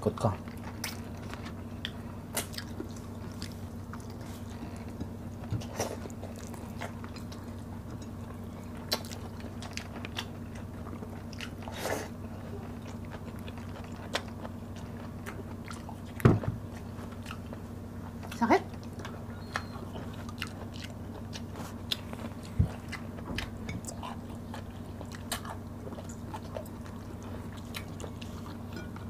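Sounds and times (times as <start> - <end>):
steady low hum: 0.0 - 29.0
chewing and biting: 0.4 - 29.0.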